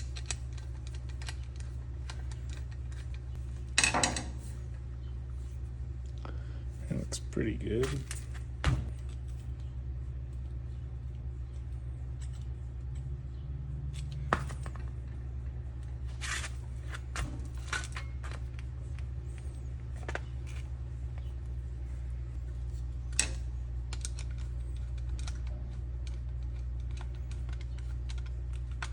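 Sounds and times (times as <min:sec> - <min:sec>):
small parts clicking and knocking: 0:00.0 - 0:04.3, 0:23.1 - 0:28.9
steady low hum: 0:00.0 - 0:28.9.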